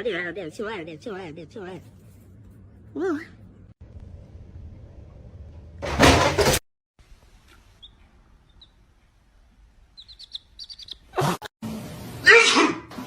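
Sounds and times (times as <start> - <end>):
bird chirping: 7.7 - 9.2, 9.8 - 11.2.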